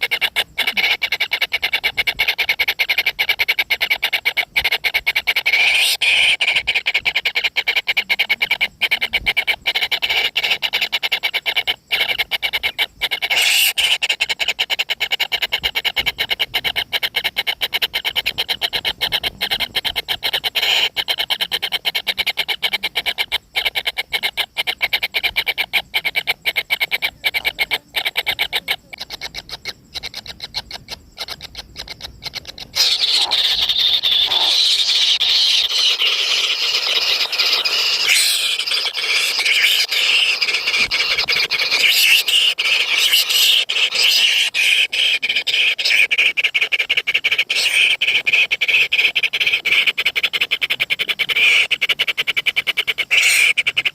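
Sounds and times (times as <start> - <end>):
bird chicks shrill calling: 30.7 - 46.4.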